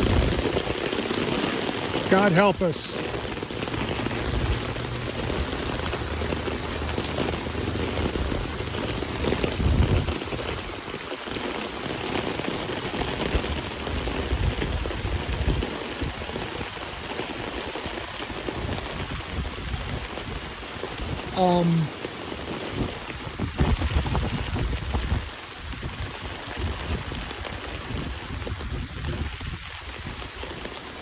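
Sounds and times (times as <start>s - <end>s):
heavy rain on pavement: 0.0s - 31.0s
low rumbling: 3.1s - 10.1s.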